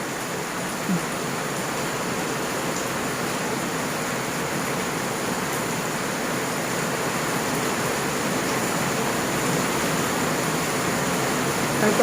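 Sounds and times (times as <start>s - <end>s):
steady rain pouring: 0.0s - 12.0s.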